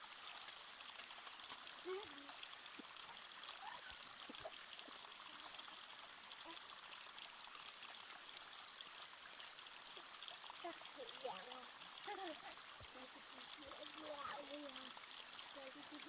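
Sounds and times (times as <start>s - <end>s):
rushing of flowing water: 0.0s - 16.0s.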